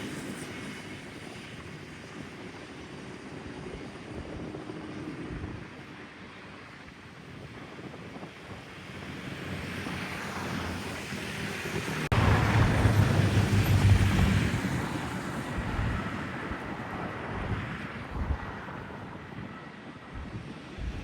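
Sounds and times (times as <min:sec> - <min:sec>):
wind buffeting microphone: 0:00.0 - 0:21.0
aircraft passing overhead: 0:08.8 - 0:21.0.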